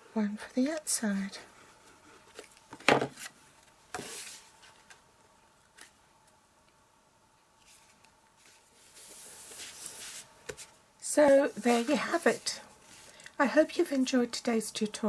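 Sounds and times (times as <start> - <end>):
paper rustling: 7.6 - 13.3.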